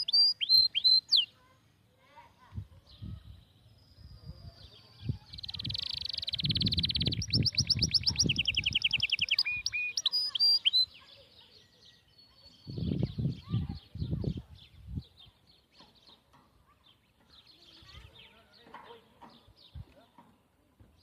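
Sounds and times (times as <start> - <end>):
songbird trilling and whistling: 0.0 - 1.4, 3.1 - 13.6.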